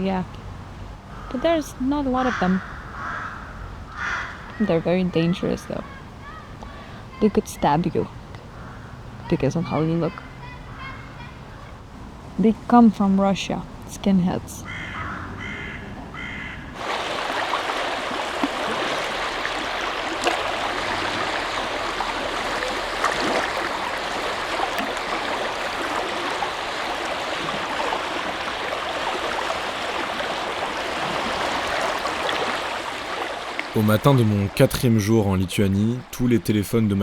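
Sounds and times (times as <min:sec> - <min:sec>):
crow cawing: 0:01.1 - 0:01.5, 0:02.2 - 0:04.9, 0:08.5 - 0:09.1, 0:14.6 - 0:16.8
rushing of flowing water: 0:16.8 - 0:37.0.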